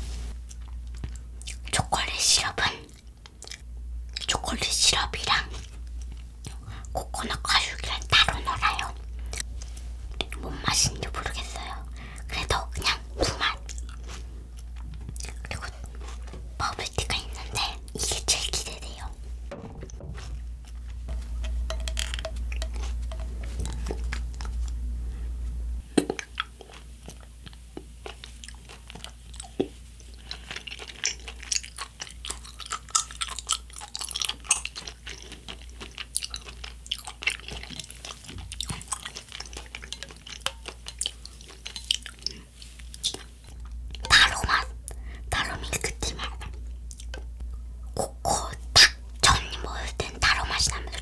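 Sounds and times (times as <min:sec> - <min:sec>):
steady low hum: 0:00.0 - 0:51.0
chewing tapioca pearls: 0:00.3 - 0:19.2, 0:20.2 - 0:24.8, 0:25.8 - 0:51.0.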